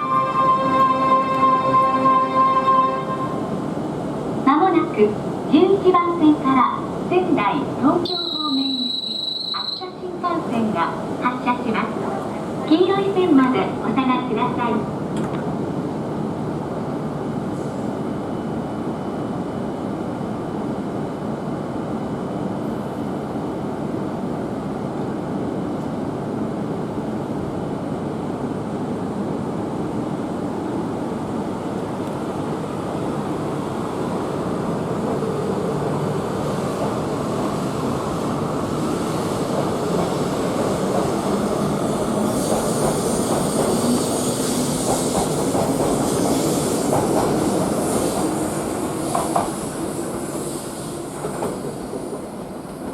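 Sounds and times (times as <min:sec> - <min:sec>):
train rumbling on rails: 0:00.0 - 0:52.9
high wheel squeal: 0:08.1 - 0:09.8
hiss: 0:41.9 - 0:52.1.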